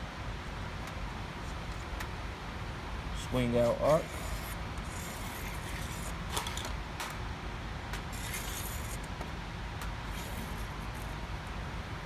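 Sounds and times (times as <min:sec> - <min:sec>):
steady background hum: 0:00.0 - 0:12.0
metallic clicks and scrapes: 0:03.8 - 0:07.2, 0:08.0 - 0:11.3.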